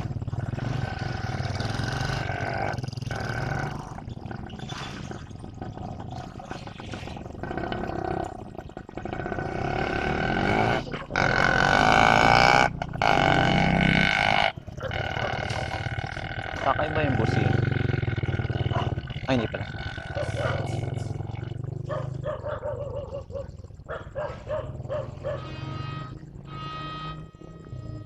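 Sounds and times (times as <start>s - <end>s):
diesel locomotive running: 23.9s - 28.0s
locomotive horn blasts: 25.2s - 28.0s.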